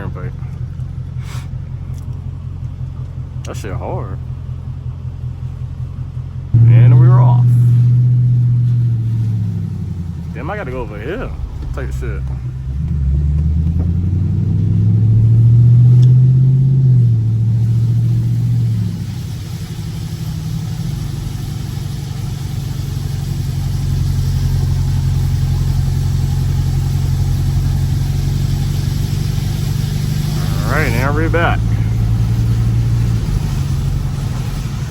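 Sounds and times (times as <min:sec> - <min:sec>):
car engine accelerating: 0:00.0 - 0:34.9
tyre hiss on wet road: 0:01.2 - 0:01.6, 0:17.4 - 0:34.9.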